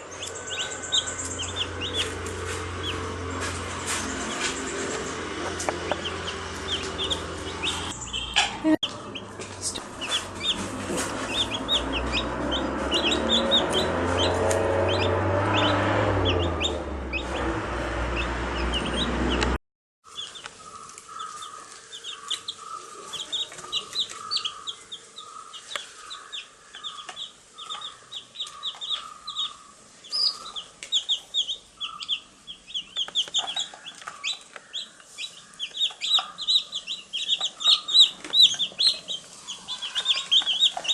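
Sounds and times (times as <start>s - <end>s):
loud low rumble: 0.0s - 19.6s
baby chicks peeping: 0.0s - 40.9s.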